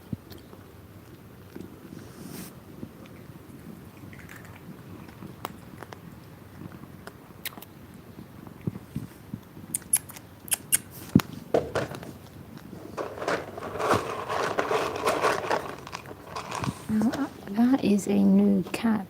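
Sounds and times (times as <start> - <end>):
cats crunching dry kibble: 0.0 - 17.7.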